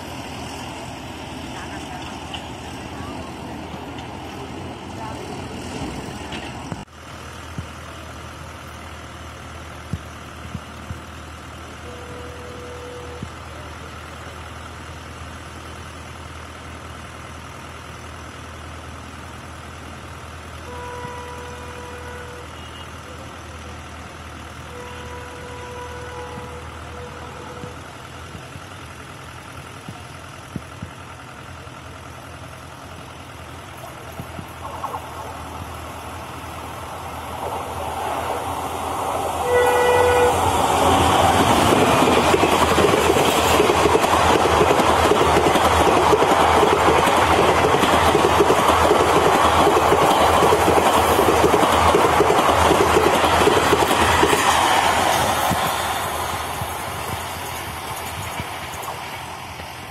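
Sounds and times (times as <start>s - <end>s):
distant locomotive rumble: 0.0s - 59.9s
faint locomotive horn: 11.7s - 13.9s, 20.6s - 28.3s, 39.4s - 41.8s
electric train rushing past: 33.9s - 59.9s.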